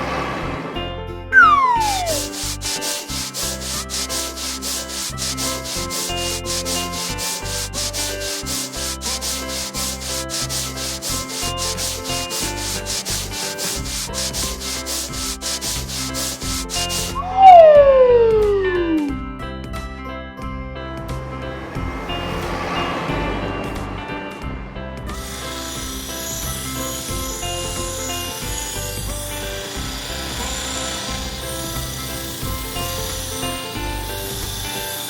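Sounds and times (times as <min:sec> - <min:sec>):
light background music: 0:00.0 - 0:35.0
falling whistle-like glide: 0:01.3 - 0:03.1, 0:16.9 - 0:19.2
cartoon scrubbing brush strokes: 0:01.4 - 0:17.7, 0:25.1 - 0:35.0.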